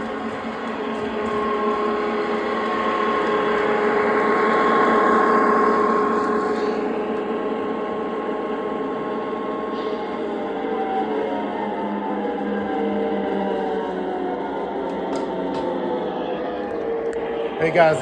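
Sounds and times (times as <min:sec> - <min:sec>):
model train motor whine: 0:00.0 - 0:12.6
wheel and rail rumble: 0:00.0 - 0:15.8.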